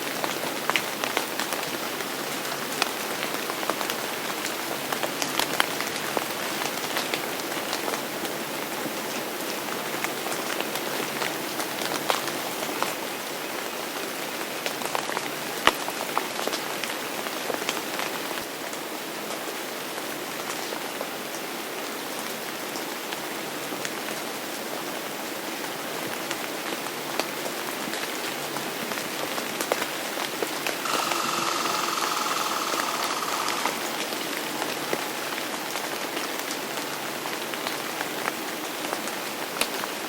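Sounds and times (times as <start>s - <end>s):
rain falling on a surface: 0.0s - 30.8s, 34.2s - 40.0s.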